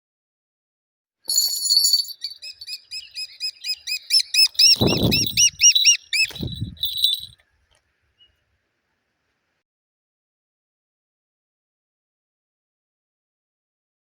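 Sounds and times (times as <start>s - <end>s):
falcon calling: 1.9s - 7.4s.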